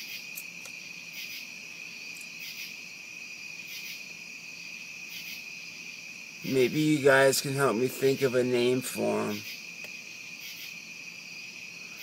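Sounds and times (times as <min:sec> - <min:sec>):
night insects trilling: 0:00.0 - 0:12.0.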